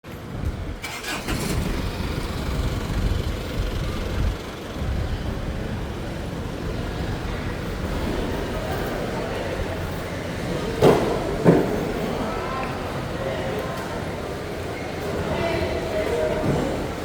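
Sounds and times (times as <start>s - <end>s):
low rumbling background noise: 0.1s - 17.0s.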